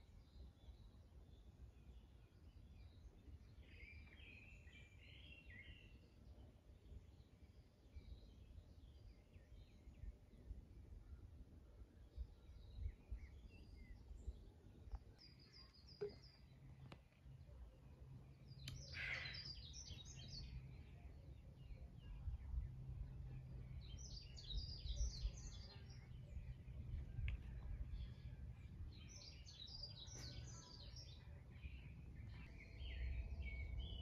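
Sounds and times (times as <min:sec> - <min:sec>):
songbirds chirping: 0:00.0 - 0:34.0
faint low rumble: 0:09.6 - 0:34.0.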